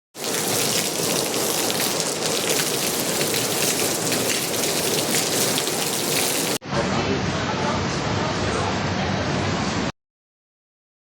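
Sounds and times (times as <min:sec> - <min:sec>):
heavy rain pouring: 0:00.2 - 0:06.6.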